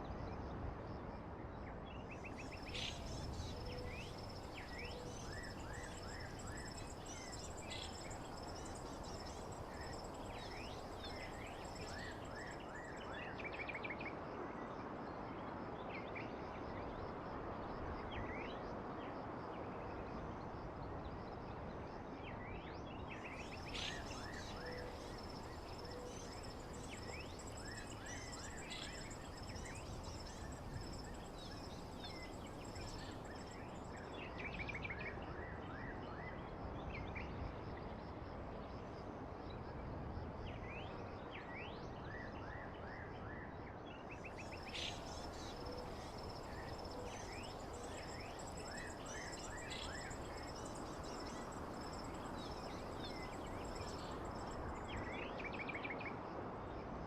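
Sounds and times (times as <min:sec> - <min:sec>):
background hiss: 0:23.3 - 0:34.0, 0:44.4 - 0:55.0
high insect trill: 0:23.4 - 0:34.0, 0:44.3 - 0:55.1.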